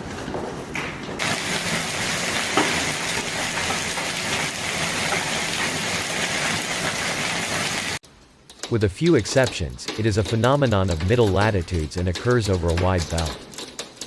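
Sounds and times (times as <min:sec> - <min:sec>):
hail clattering: 0:01.2 - 0:08.0.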